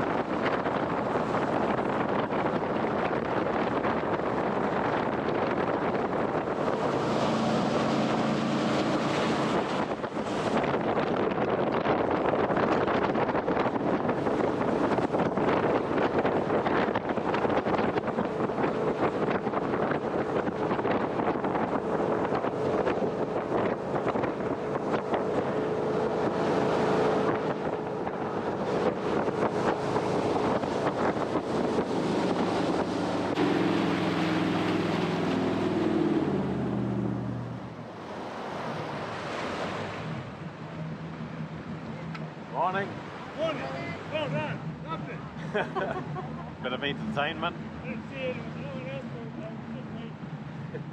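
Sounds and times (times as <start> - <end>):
jet boat engine: 0.0 - 50.9
rush of water and wind: 0.0 - 50.9.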